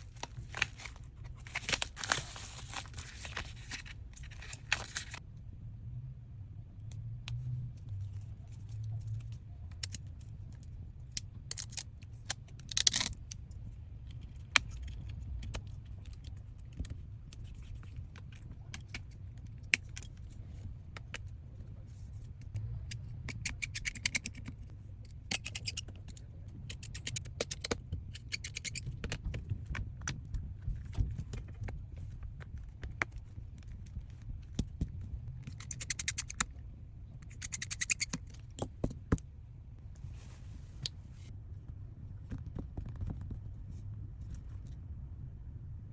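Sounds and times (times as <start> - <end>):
low steady hum: 0.0 - 45.9
small tools clicking: 25.3 - 28.9, 35.4 - 36.5, 37.3 - 38.7.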